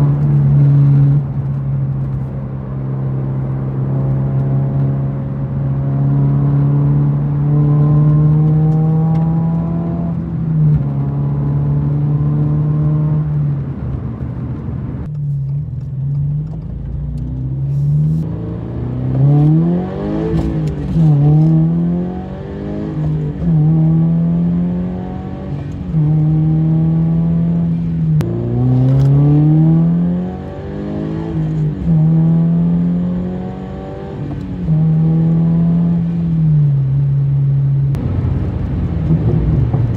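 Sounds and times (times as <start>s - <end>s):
car engine exhaust revving: 17.4s - 39.9s.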